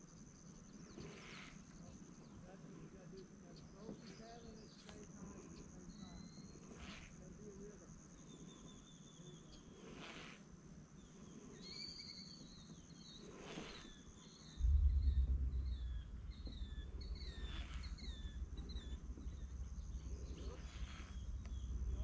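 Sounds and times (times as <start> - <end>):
bird chirping: 11.0 - 22.0
low rumble: 14.6 - 22.0
high insect-like buzz: 15.0 - 22.0.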